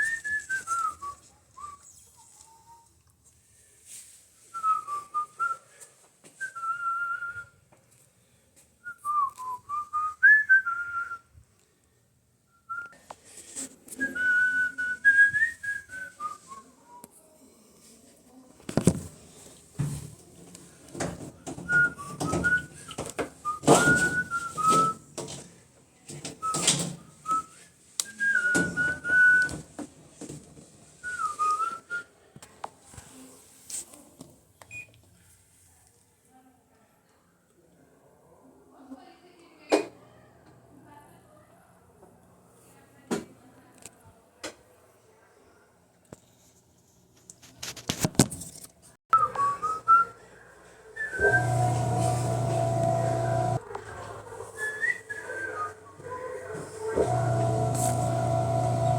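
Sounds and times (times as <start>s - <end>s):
knocks and clatter of handling: 19.8s - 27.4s
person whistling a tune: 21.7s - 25.0s, 27.3s - 29.6s, 49.2s - 50.2s.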